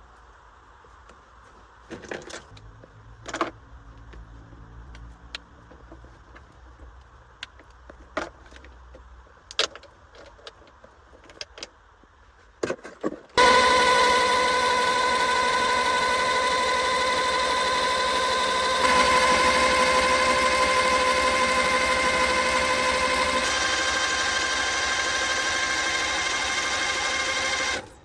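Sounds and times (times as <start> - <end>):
loud mechanical drone: 13.4 - 27.9.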